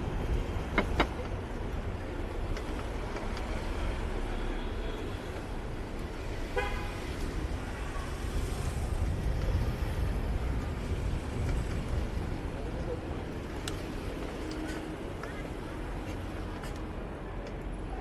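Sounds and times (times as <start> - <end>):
city traffic rumble: 0.0 - 18.0
car horn toot: 6.6 - 7.0.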